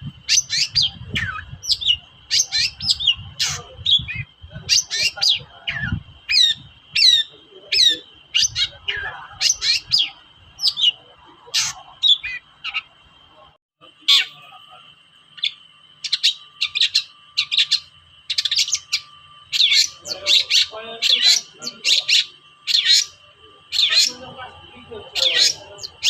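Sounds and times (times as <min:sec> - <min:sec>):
thin steady high tone: 0:00.0 - 0:26.0
bird singing sharp chirps: 0:00.2 - 0:11.0, 0:15.4 - 0:24.3.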